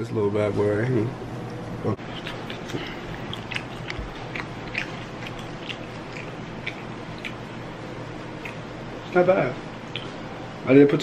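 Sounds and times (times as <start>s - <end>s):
person chewing: 2.0s - 9.2s, 9.8s - 10.2s.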